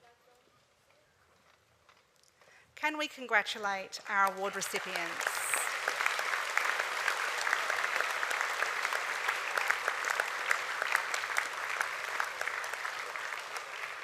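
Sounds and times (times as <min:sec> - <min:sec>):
audience applause: 0:04.2 - 0:14.0.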